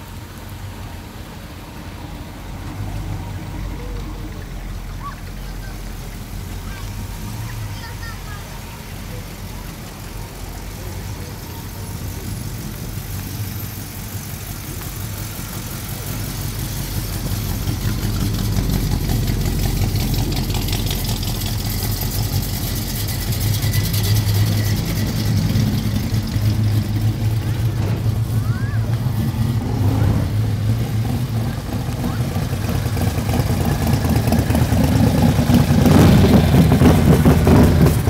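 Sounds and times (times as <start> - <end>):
car engine rumbling: 0.0 - 38.0.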